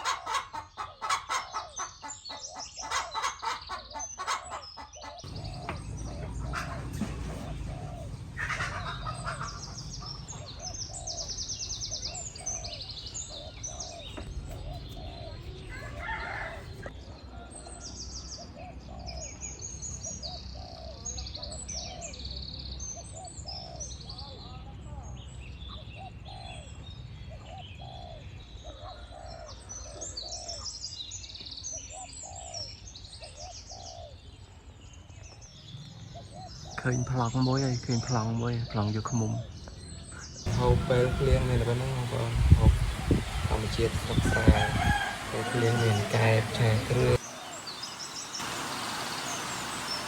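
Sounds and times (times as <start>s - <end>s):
chickens clucking: 0.0s - 16.9s, 40.4s - 47.7s
small birds chirping: 0.0s - 50.0s
loud sharp sounds: 40.5s - 50.0s.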